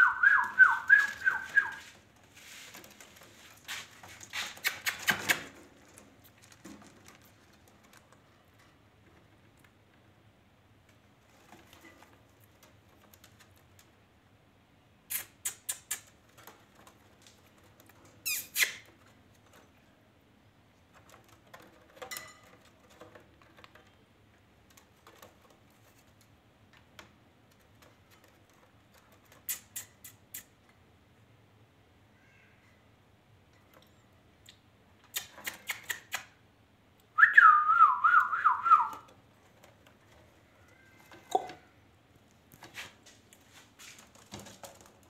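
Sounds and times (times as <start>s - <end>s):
parrot chirping: 18.2s - 18.8s.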